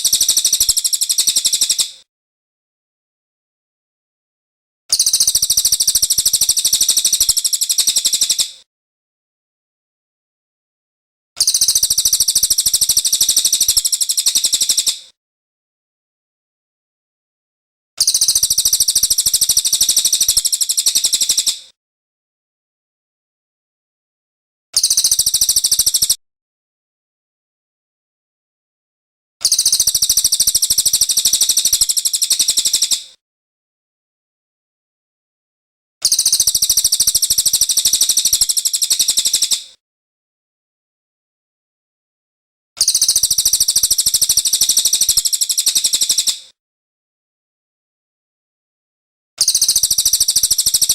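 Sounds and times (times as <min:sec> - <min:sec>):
songbird high-pitched trill: 0:04.9 - 0:08.5, 0:11.4 - 0:15.0, 0:18.0 - 0:21.6, 0:24.8 - 0:26.2, 0:29.4 - 0:33.0, 0:36.0 - 0:39.6, 0:42.8 - 0:46.3, 0:49.4 - 0:50.9.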